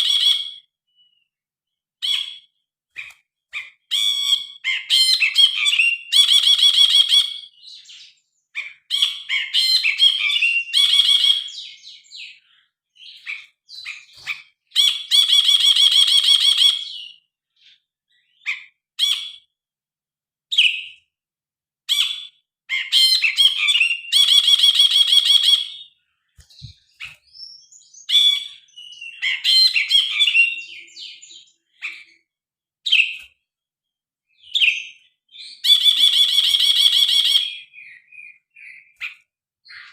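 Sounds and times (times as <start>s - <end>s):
harsh rattling bird calls: 2.0s - 19.5s, 34.4s - 39.9s
bulbul singing whistled notes: 26.4s - 31.8s.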